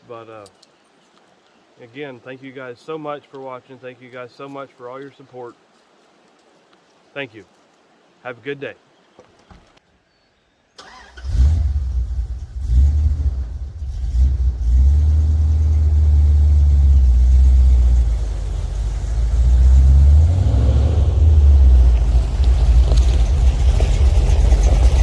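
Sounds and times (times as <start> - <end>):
pickup engine droning: 10.9 - 25.0.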